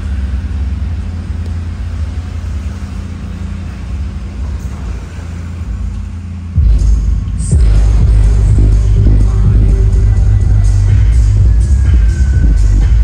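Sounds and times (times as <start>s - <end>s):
engine running low rumble: 0.0s - 13.0s.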